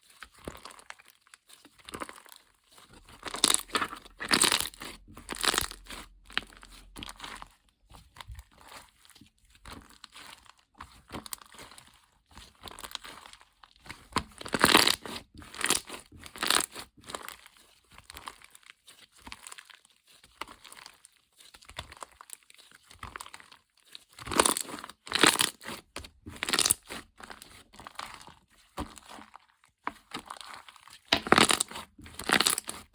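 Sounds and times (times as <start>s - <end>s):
crinkly material rustling: 0.0s - 32.9s.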